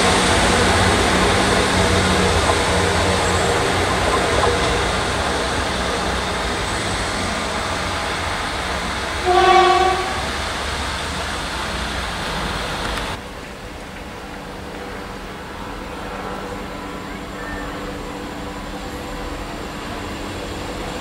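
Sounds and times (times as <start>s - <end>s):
train horn blast: 0.0s - 10.5s
train engine and wheel rumble: 0.0s - 21.0s.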